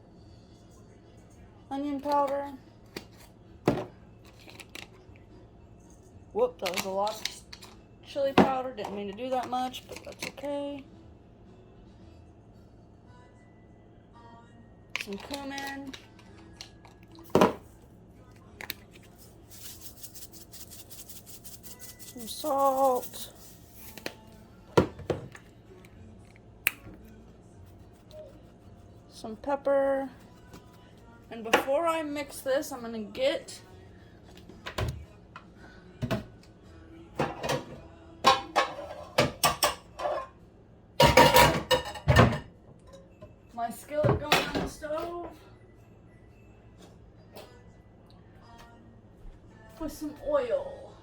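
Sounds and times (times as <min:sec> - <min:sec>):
spice shaker rattling: 0:18.7 - 0:24.1
faint quick shaking: 0:19.0 - 0:24.0.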